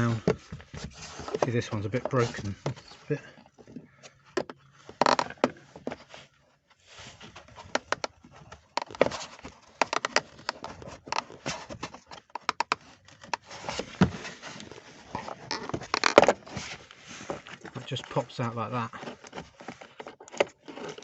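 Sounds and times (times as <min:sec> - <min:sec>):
plastic clicks taps and scrapes: 0:08.8 - 0:13.4.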